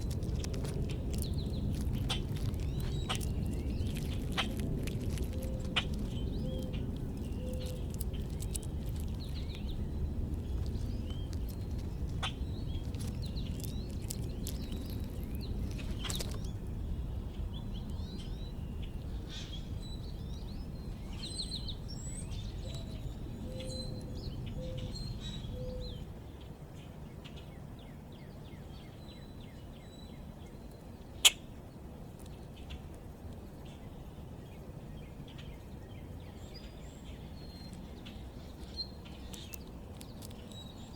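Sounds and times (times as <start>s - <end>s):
low background rumble: 0.0s - 40.9s
small birds chirping: 0.0s - 40.9s.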